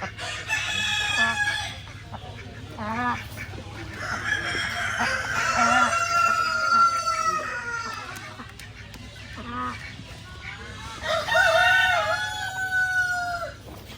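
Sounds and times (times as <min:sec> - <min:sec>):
roosters crowing: 0:00.0 - 0:02.2, 0:03.0 - 0:08.4, 0:10.6 - 0:13.9
hens clucking: 0:00.0 - 0:13.9.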